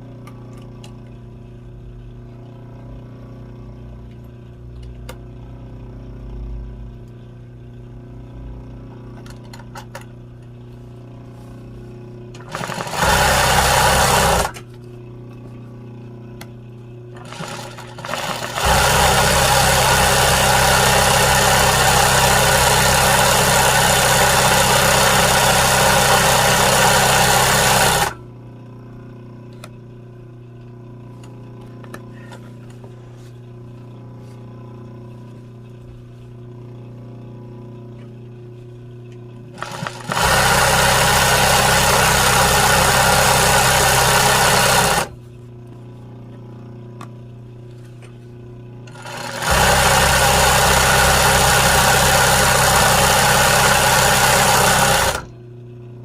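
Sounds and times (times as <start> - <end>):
steady low hum: 0.0 - 40.0, 43.4 - 54.6
sewing machine stitching: 12.4 - 14.6, 17.2 - 28.2, 39.5 - 45.2, 48.9 - 55.3.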